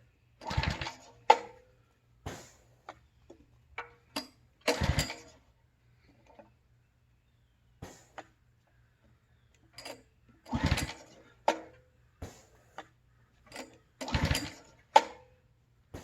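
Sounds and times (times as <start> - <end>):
recoil starter cranking rattle: 0.4 - 1.5, 4.6 - 5.4, 9.8 - 11.7, 13.5 - 15.2.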